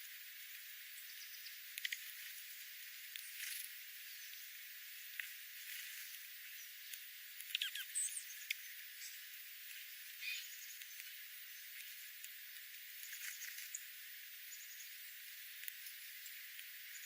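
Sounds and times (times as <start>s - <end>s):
steady hiss: 0.0s - 17.0s
small birds chirping: 6.1s - 17.0s.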